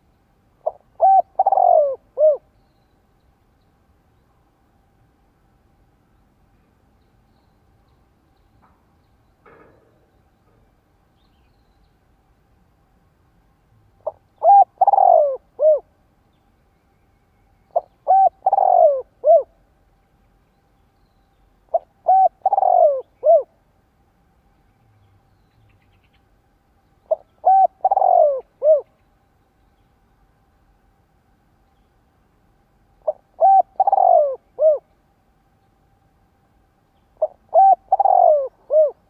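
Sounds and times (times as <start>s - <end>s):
dove cooing: 0.6s - 2.5s, 14.0s - 15.9s, 17.7s - 19.6s, 21.7s - 23.6s, 27.1s - 28.9s, 33.0s - 34.9s, 37.2s - 39.0s.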